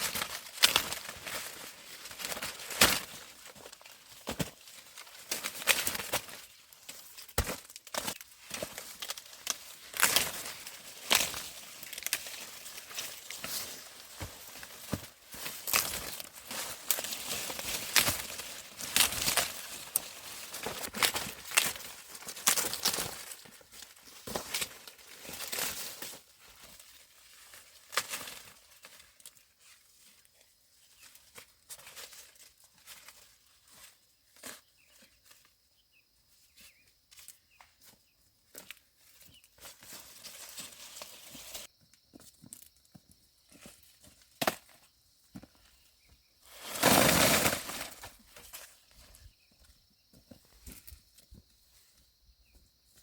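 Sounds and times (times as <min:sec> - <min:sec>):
corn ears snapping off: 0:00.0 - 0:26.2, 0:27.9 - 0:29.4, 0:44.4 - 0:44.8
dry corn plants rustling: 0:00.0 - 0:53.0.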